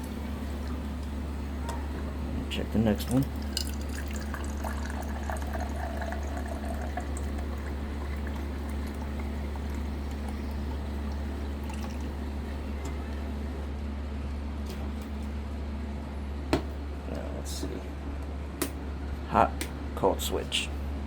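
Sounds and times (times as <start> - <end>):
water pouring into a cup: 3.0 - 12.7.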